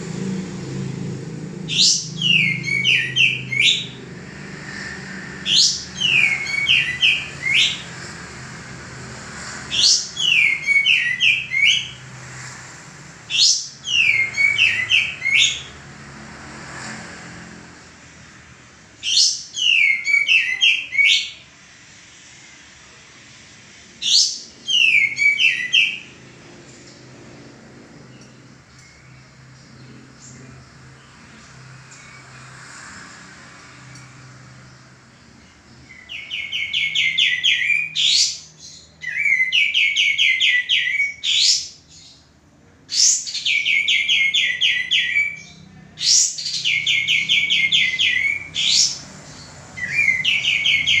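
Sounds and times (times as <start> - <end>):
bulbul singing: 0.2 - 8.2, 9.6 - 12.1, 13.2 - 15.8, 19.0 - 21.5, 24.0 - 26.2, 33.8 - 42.3, 42.9 - 51.0.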